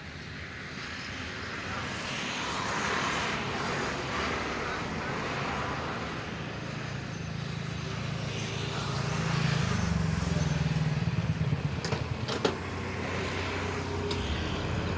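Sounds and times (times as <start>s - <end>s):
motor vehicle engine running: 10.0s - 14.9s.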